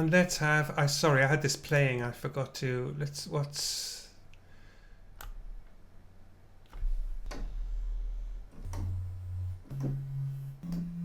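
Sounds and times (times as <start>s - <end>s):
low droning sampled notes: 6.8s - 11.0s.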